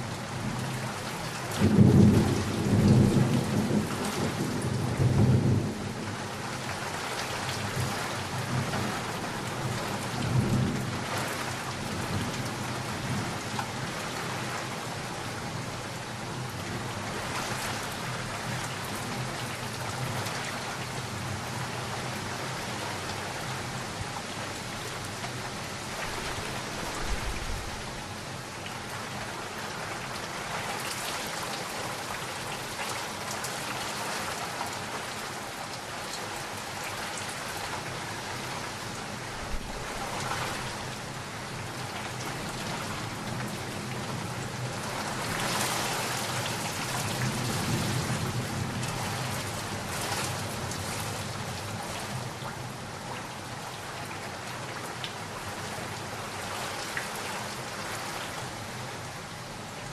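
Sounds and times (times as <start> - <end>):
steady rain: 0.0 - 59.9
thunder rumble: 26.0 - 28.0.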